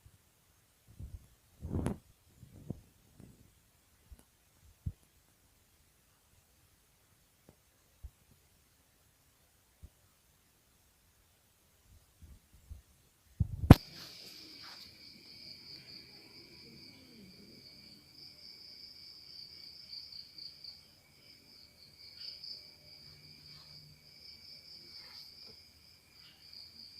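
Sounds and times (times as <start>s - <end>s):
crickets chirring: 13.6s - 26.9s.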